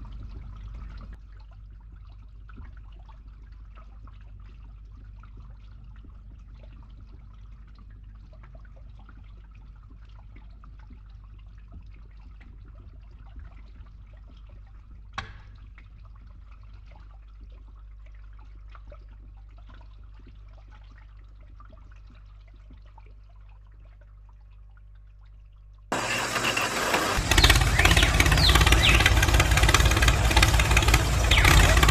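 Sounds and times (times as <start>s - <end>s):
water trickling faintly: 0.0s - 25.9s
steady low hum: 27.2s - 31.9s.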